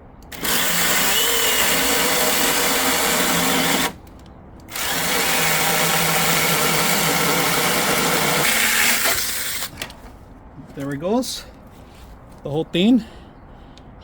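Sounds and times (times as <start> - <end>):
mini chainsaw cutting wood: 0.3 - 4.0, 4.7 - 9.7.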